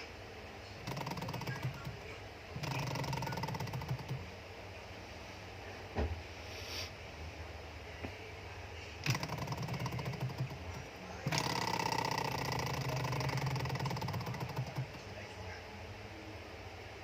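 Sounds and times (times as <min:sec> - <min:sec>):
model engine clattering: 0:09.1 - 0:10.7, 0:11.3 - 0:15.0.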